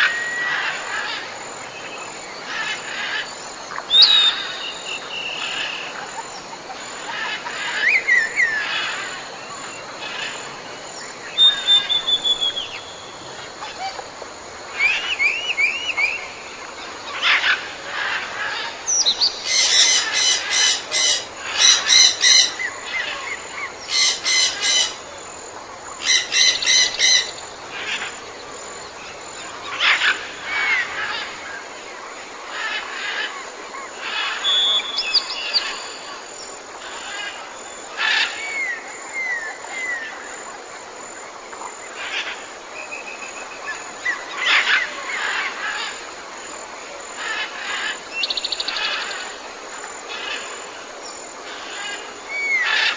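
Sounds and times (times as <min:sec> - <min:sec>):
rapid buzzy pulsed bird calls: 0:11.3 - 0:31.6
birds chirping and whistling: 0:11.4 - 0:13.2, 0:14.8 - 0:16.5.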